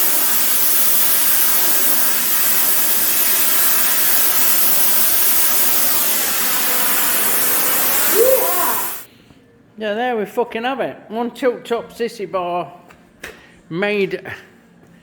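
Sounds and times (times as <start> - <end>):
gas torch hissing: 0.0 - 9.1.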